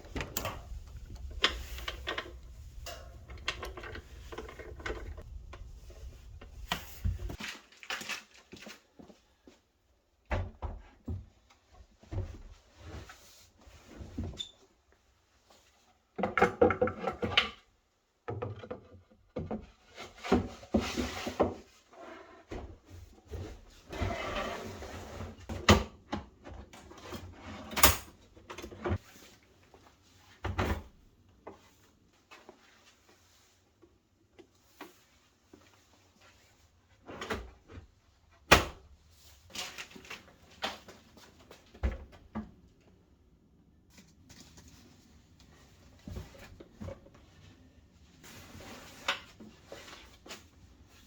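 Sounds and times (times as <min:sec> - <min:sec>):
rustling of objects: 0:00.0 - 0:09.7, 0:39.0 - 0:42.6, 0:43.8 - 0:51.0.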